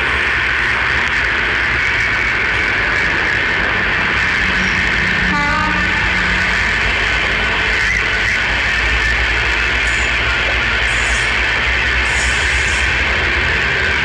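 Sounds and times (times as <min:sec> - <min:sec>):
diesel locomotive running: 0:00.0 - 0:14.0
locomotive horn toot: 0:04.9 - 0:06.8.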